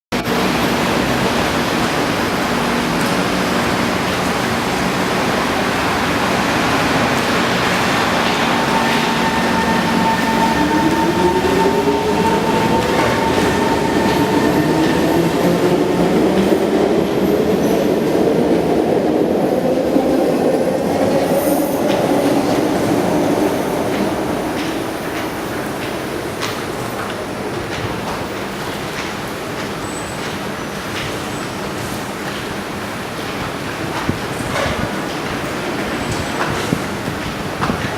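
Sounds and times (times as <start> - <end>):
train wheels rumbling on rails: 0.1 - 37.9
train traction motors whining: 0.3 - 15.8.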